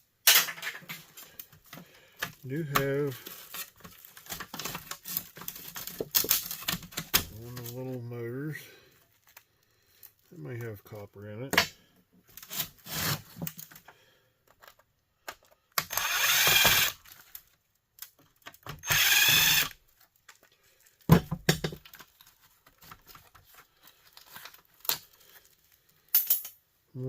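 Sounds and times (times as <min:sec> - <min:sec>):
power drill running: 0:15.8 - 0:17.0, 0:18.8 - 0:19.8.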